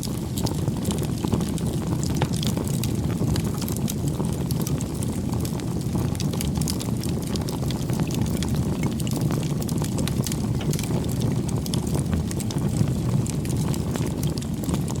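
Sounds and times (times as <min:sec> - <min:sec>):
fire crackling and popping: 0:00.0 - 0:15.0
flame rumbling: 0:00.0 - 0:15.0.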